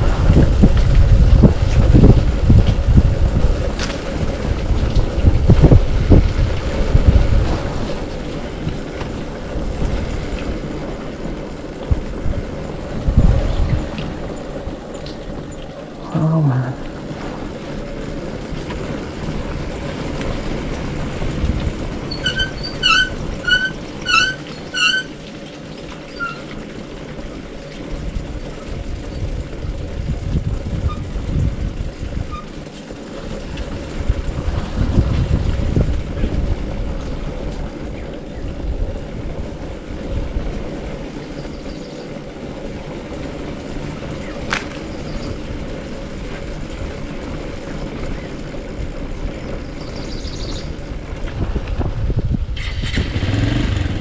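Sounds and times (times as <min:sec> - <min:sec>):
wind noise on microphone: 0:00.0 - 0:54.0
motorcycle engine running: 0:26.7 - 0:54.0.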